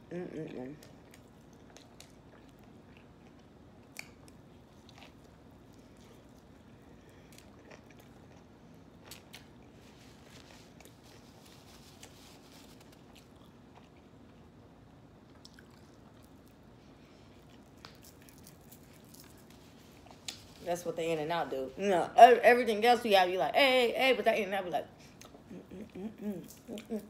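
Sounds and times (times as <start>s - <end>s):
chewing with wet mouth clicks: 0.8s - 9.8s, 12.0s - 16.6s, 17.3s - 20.5s.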